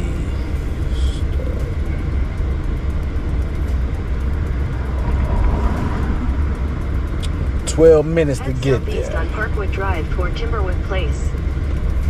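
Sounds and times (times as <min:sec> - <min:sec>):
truck rumble from inside cab: 0:00.0 - 0:12.0.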